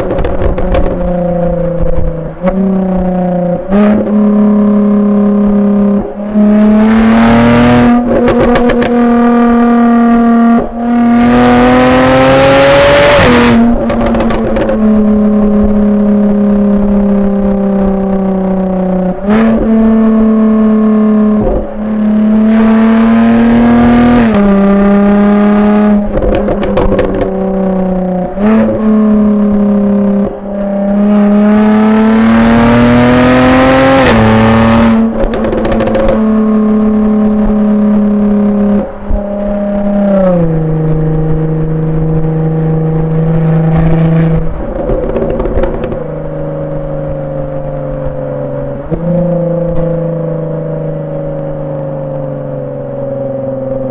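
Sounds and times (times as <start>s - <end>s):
exhaust pops and crackles: 0.0s - 3.2s, 7.9s - 9.4s, 13.2s - 15.8s, 24.2s - 25.1s, 25.8s - 30.7s, 33.9s - 40.6s, 43.0s - 50.0s
car engine accelerating through gears: 0.0s - 53.9s.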